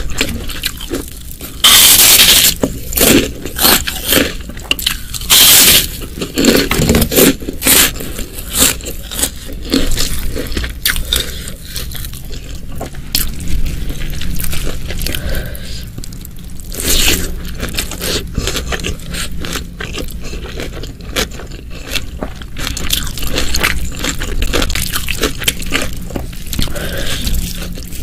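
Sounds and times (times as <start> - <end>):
loud crunches: 0.0 - 15.6
person chewing food: 0.0 - 28.0.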